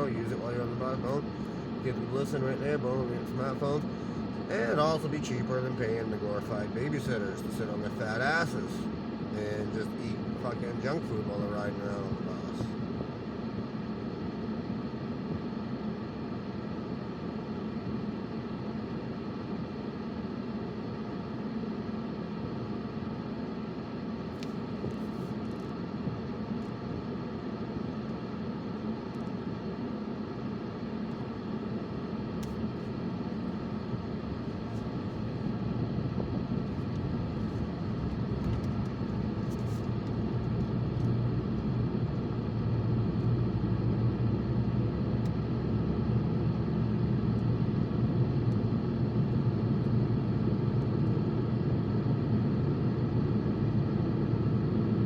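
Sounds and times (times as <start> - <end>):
car road and engine rumble: 20.4 - 55.0.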